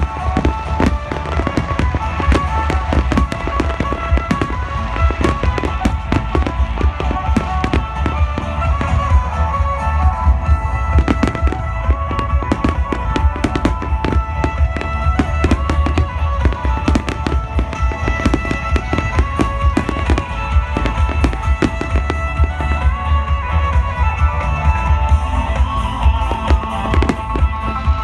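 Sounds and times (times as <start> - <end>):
firework bangs and crackles: 0.0 - 28.0
music playing: 0.0 - 28.0.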